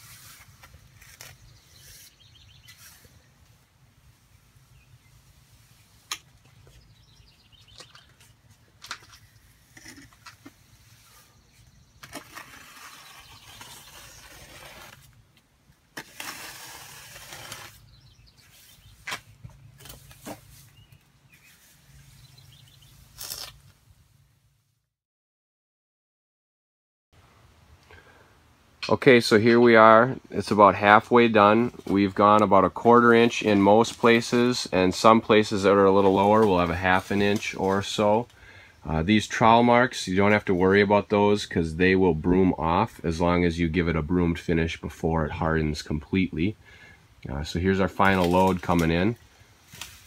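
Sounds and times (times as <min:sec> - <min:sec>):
trowels scraping wet mortar: 0:12.0 - 0:15.1, 0:15.9 - 0:17.9.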